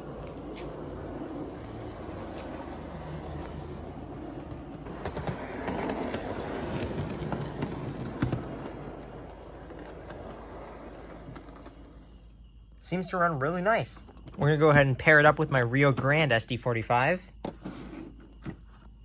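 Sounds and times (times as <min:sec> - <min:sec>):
model train motor whirring: 0:00.0 - 0:12.4
wheels clicking on rails: 0:00.0 - 0:16.4.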